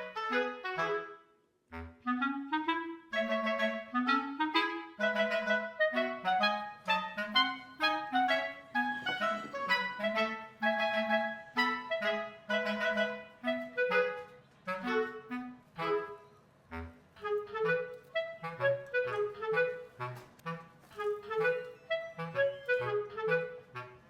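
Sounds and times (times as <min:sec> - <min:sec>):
woodwind melody: 0:00.0 - 0:24.0.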